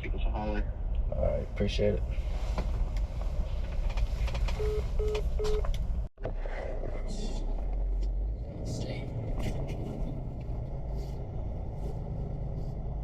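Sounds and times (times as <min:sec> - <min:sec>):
truck engine rumbling: 0:00.1 - 0:13.0
phone call-ended beeps: 0:04.6 - 0:05.6.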